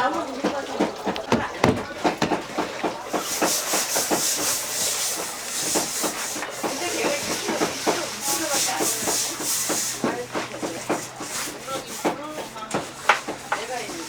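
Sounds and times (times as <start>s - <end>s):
knife knocking on cutting board: 1.2s - 2.4s
hiss: 3.1s - 12.0s.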